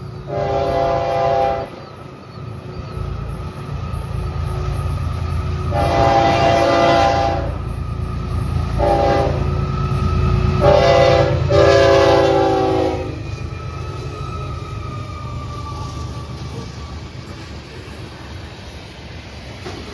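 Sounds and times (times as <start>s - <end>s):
train engines rumbling: 0.0s - 19.9s
locomotive air horn blasts: 0.3s - 1.8s, 5.7s - 7.7s, 8.7s - 9.6s, 10.6s - 13.2s.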